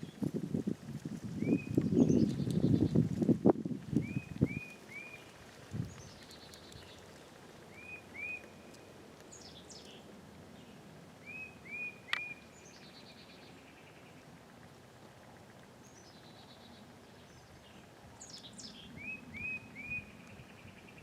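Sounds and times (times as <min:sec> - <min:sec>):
bird whistling: 0:04.0 - 0:05.2, 0:07.7 - 0:08.6, 0:11.2 - 0:12.9, 0:18.6 - 0:20.2.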